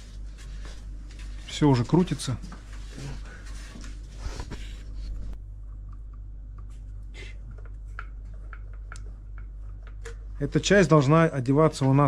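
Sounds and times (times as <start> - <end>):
steady low hum: 0.0 - 12.0
faint clicks and taps: 7.5 - 10.3.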